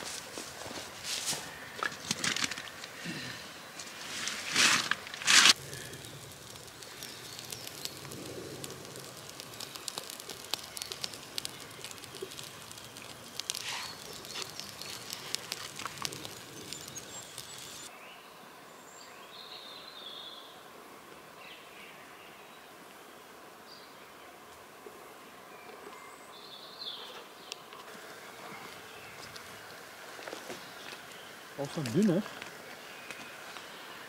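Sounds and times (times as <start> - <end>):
twigs crackling and rustling: 0.0 - 17.9, 28.6 - 33.9
forest ambience: 0.0 - 34.0
bird chirp: 9.4 - 20.5.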